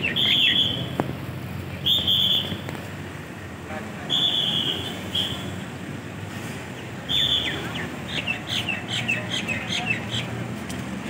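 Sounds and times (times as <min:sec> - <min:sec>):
songbird singing: 0:00.0 - 0:01.0, 0:06.8 - 0:10.6
street traffic hum: 0:00.0 - 0:11.0.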